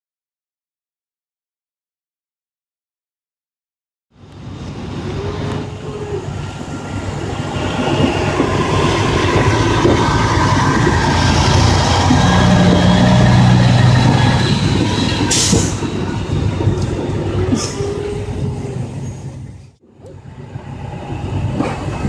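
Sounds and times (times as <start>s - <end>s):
truck and trailer rumbling: 4.2s - 22.0s.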